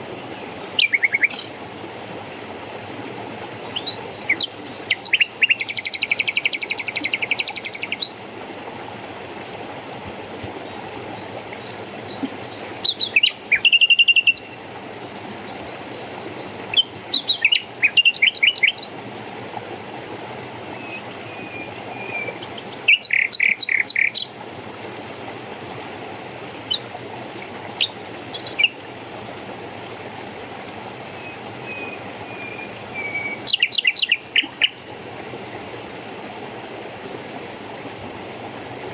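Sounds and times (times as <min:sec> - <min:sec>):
flowing water rushing: 0:00.0 - 0:38.9
songbirds chirping and trilling: 0:11.4 - 0:14.6, 0:16.0 - 0:18.9, 0:20.6 - 0:24.3, 0:27.6 - 0:28.8, 0:31.1 - 0:34.9.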